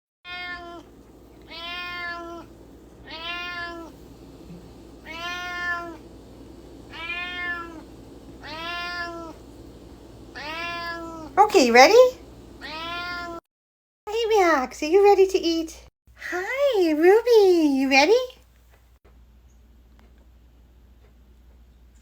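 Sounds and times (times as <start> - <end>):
cat meowing: 0.3 - 9.6, 10.3 - 11.4, 12.6 - 13.4.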